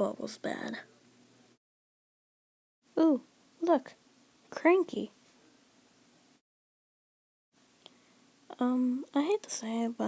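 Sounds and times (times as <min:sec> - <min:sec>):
faint background hiss: 0:00.0 - 0:01.6, 0:02.9 - 0:06.4, 0:07.6 - 0:10.0.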